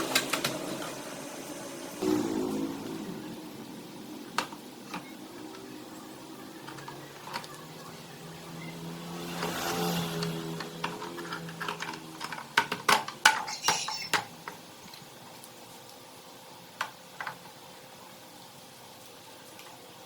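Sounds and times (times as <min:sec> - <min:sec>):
metallic clinks and knocks: 0:13.3 - 0:14.3.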